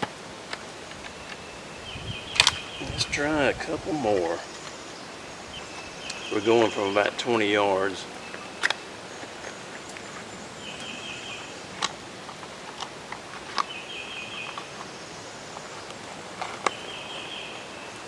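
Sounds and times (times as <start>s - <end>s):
sharp clicks: 2.3s - 2.9s.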